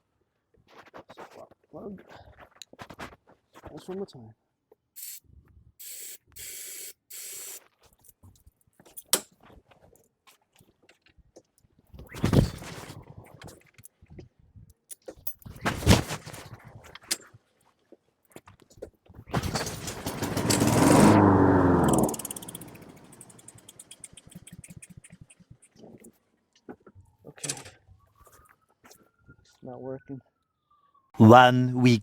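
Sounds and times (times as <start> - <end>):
engine sputtering: 19.4 - 25.4
recoil starter pulls: 19.4 - 25.4.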